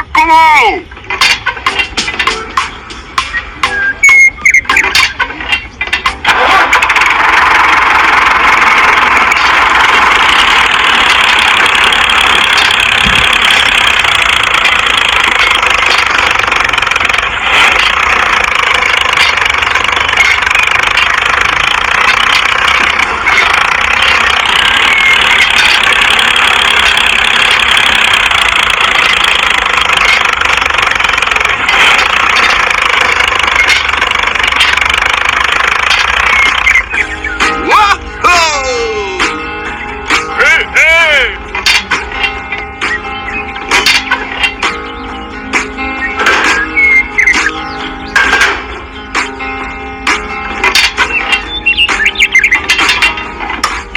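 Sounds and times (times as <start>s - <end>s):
small motor whirring: 6.4s - 37.2s.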